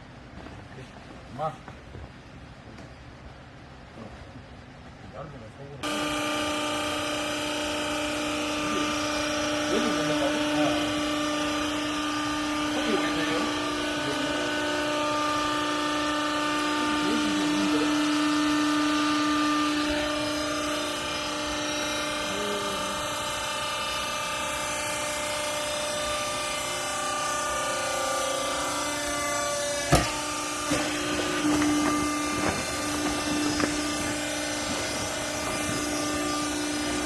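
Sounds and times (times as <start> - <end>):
hydraulic power pack whine: 0.0 - 37.0
sharp knocks: 29.8 - 35.7.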